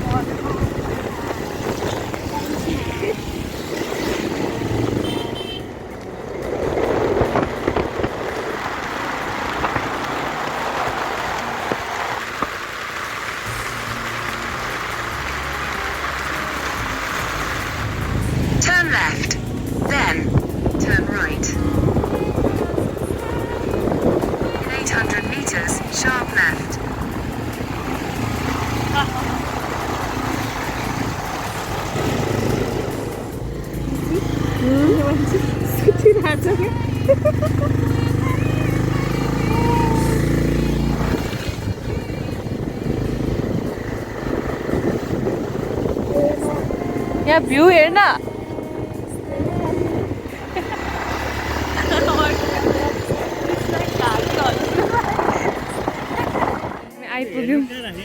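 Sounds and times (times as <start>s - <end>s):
wind noise: 0.0s - 14.0s, 16.8s - 57.0s
low engine hum: 0.0s - 58.0s
vehicle on wet road: 0.0s - 58.0s
rain hissing: 6.5s - 46.6s.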